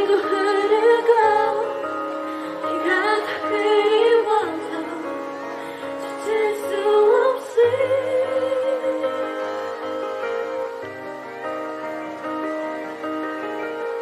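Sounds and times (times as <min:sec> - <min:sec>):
woman singing slow ballad: 0:00.0 - 0:09.6
instrumental accompaniment: 0:00.0 - 0:14.0.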